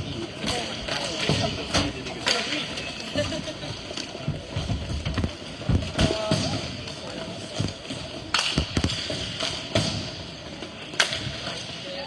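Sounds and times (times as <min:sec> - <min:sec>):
rink background noise: 0:00.0 - 0:12.0
hockey sticks and puck striking: 0:00.4 - 0:02.9, 0:05.2 - 0:11.7.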